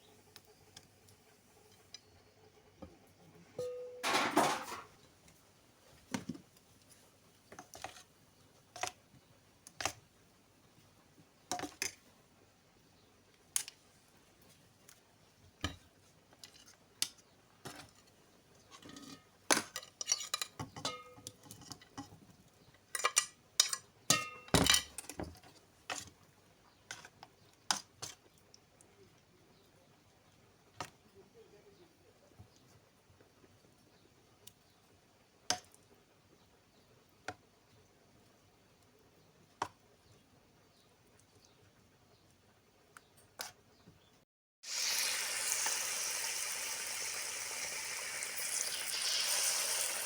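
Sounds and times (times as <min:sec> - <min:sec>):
dishes and cutlery clinking: 0:03.6 - 0:05.0, 0:18.7 - 0:22.2, 0:22.9 - 0:26.0.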